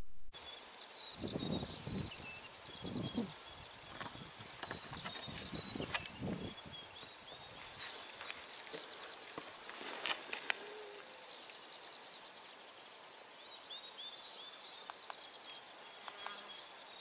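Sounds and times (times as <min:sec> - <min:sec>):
birds trilling and chirping: 0:00.4 - 0:17.0.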